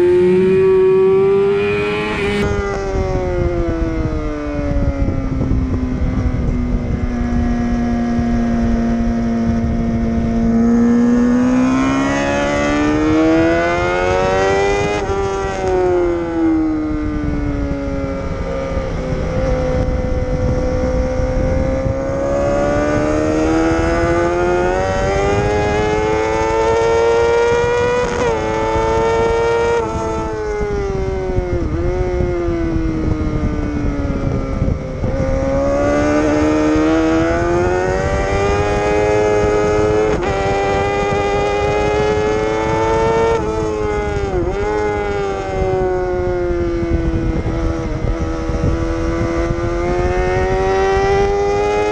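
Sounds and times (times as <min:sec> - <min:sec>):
motorcycle engine accelerating: 0:00.0 - 0:51.9
wind rush: 0:00.0 - 0:51.9.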